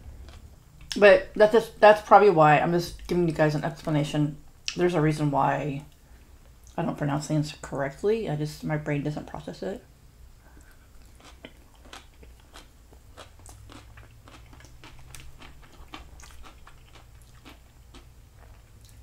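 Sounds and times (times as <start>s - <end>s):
steady low hum: 0.0s - 19.0s
chewing crunches: 10.6s - 19.0s.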